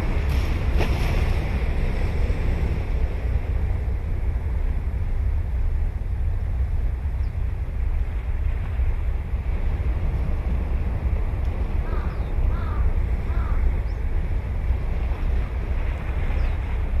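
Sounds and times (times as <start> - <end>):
surf rumble: 0.0 - 17.0
wind buffeting microphone: 0.0 - 17.0
crow cawing: 11.8 - 13.6.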